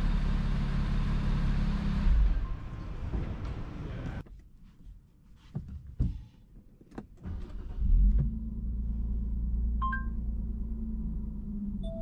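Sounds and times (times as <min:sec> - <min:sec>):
car engine starting and idling: 0:07.0 - 0:12.0.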